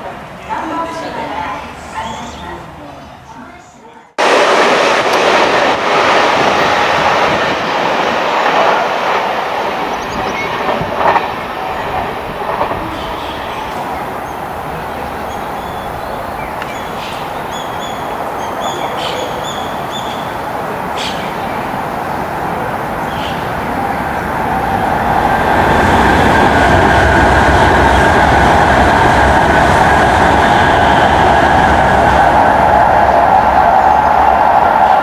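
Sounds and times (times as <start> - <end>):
train hum and rumble: 0.0 - 35.0.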